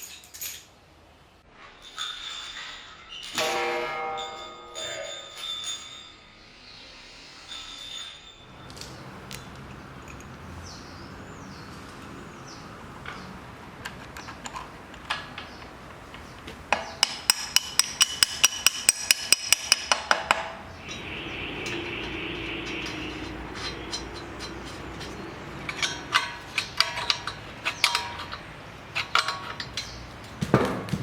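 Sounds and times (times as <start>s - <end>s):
hammer striking anvil: 3.3s - 6.0s, 16.8s - 27.2s
steady hum: 20.6s - 27.7s.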